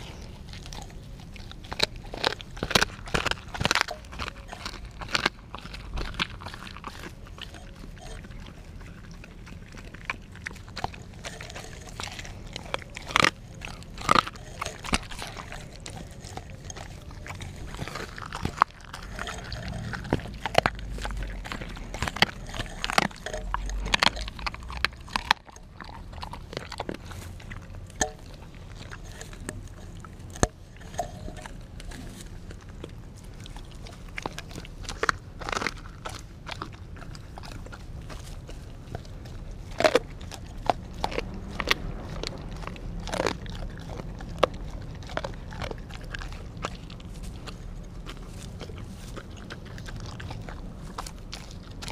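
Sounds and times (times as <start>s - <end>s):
dog crunching bones: 0.0s - 51.9s.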